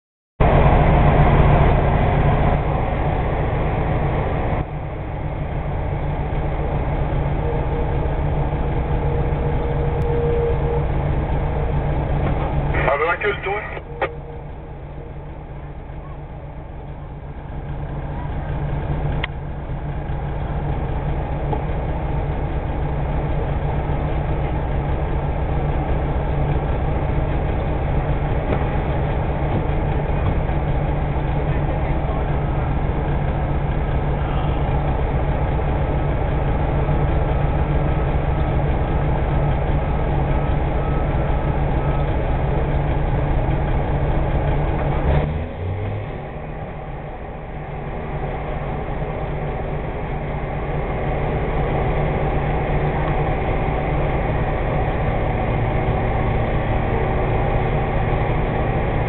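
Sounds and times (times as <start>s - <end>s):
diesel engine running: 0.4s - 59.0s.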